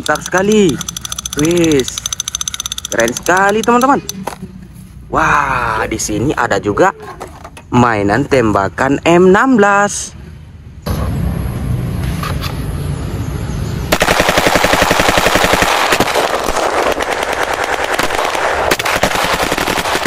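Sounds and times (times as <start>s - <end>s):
toy rifle automatic gunfire: 0.0s - 4.1s, 14.0s - 16.1s.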